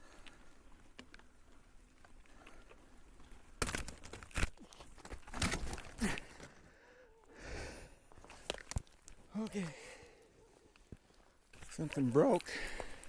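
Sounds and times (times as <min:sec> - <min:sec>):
knocks and scuffs of bike: 0:03.5 - 0:06.5.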